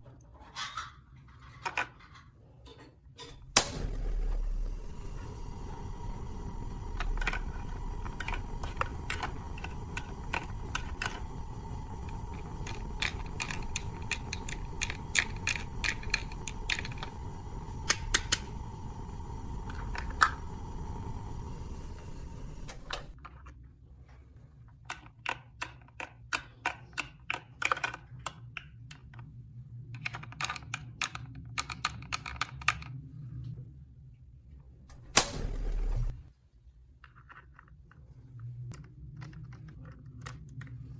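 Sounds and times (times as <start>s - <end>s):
steady background hum: 0.0s - 40.9s
plastic toy pieces clicking: 12.1s - 17.1s.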